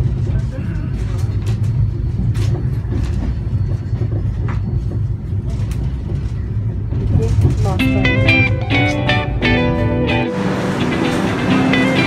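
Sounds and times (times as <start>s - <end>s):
train coach rumbling on track: 0.0s - 12.0s.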